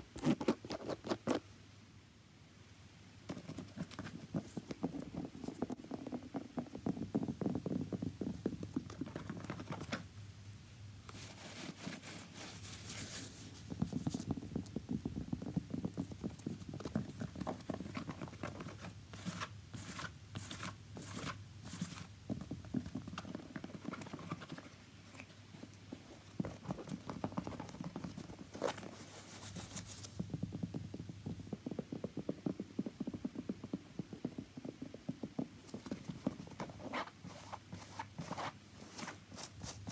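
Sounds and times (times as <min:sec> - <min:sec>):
scratching on a shoe: 0:11.1 - 0:39.9.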